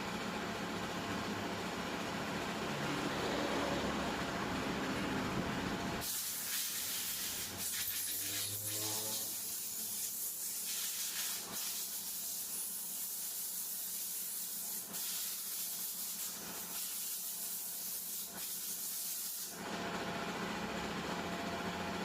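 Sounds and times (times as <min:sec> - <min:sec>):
low mechanical noise: 0:00.0 - 0:10.6.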